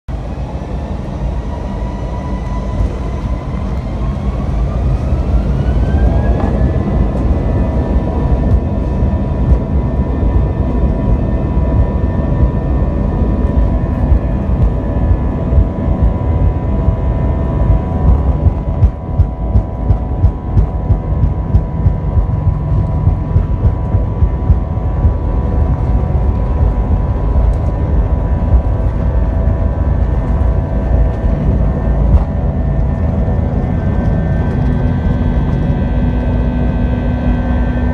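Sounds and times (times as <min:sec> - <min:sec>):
heavy rumble: 0:00.1 - 0:37.9
jet engines whining: 0:00.1 - 0:37.9.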